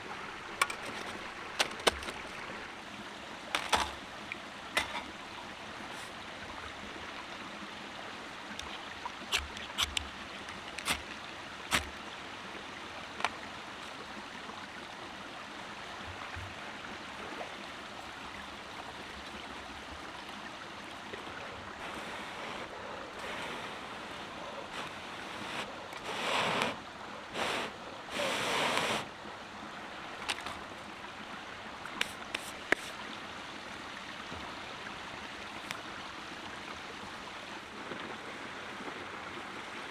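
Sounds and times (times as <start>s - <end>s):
rustling: 0.4s - 2.7s.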